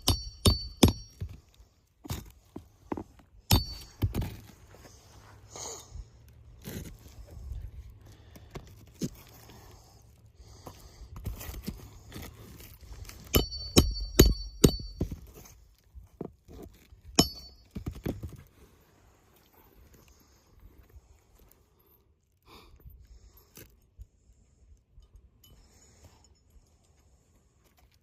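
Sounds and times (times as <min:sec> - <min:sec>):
sharp metallic clinks: 0:13.3 - 0:15.0, 0:17.2 - 0:17.7.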